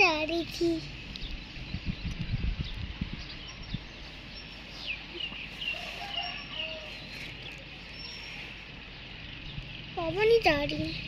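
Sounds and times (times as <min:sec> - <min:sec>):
birds chirping: 0:00.0 - 0:11.0
low outdoor background noise: 0:00.0 - 0:11.0.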